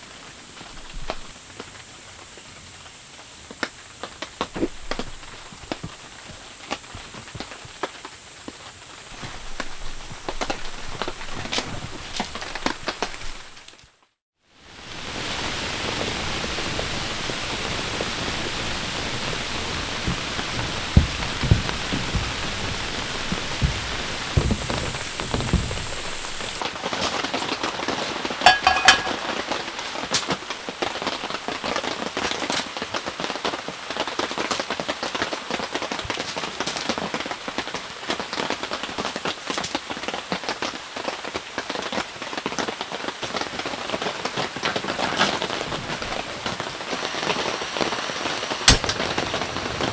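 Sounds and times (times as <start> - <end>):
raindrops striking a surface: 0.0 - 14.1, 14.7 - 49.9
heavy rain hiss: 0.0 - 49.9
low thumps: 19.0 - 26.6.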